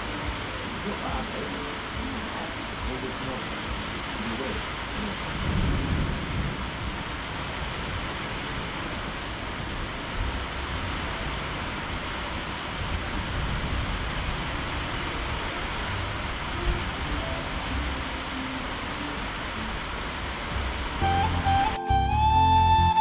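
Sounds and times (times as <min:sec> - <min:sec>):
faint low thunder rumbles: 0:00.0 - 0:18.3
heavy rain downpour: 0:00.0 - 0:22.6.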